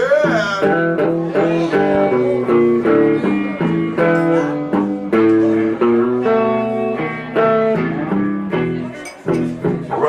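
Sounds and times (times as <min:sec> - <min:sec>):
person singing: 0:00.0 - 0:07.3
blues band playing: 0:00.0 - 0:10.0
guitar: 0:00.0 - 0:10.0.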